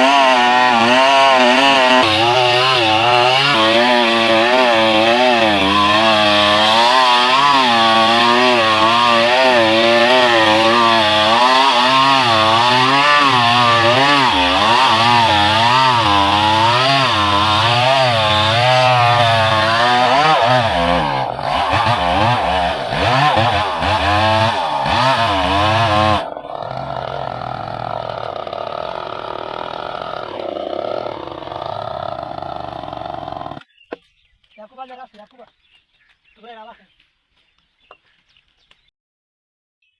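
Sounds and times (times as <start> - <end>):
chainsaw cutting wood: 0.0 - 33.7.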